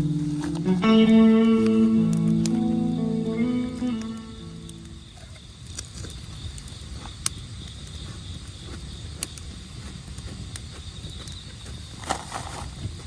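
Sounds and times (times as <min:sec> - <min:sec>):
low steady rumble: 0:00.0 - 0:05.2
campfire crackling and popping: 0:00.0 - 0:12.0
faint insect chirring: 0:00.0 - 0:13.0.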